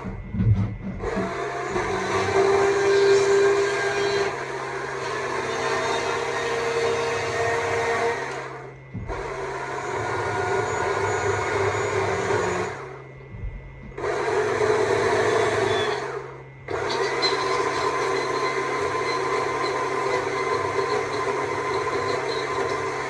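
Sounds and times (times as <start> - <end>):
chainsaw cutting wood: 16.7 - 23.0.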